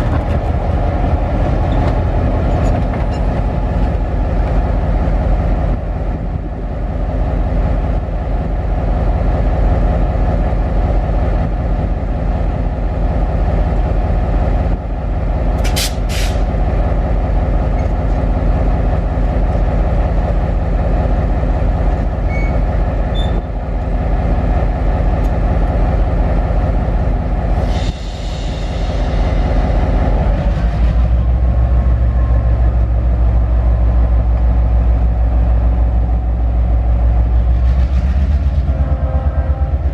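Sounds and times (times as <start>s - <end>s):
train rumbling: 0.0s - 39.9s
train hiss: 15.6s - 16.5s, 27.5s - 31.2s.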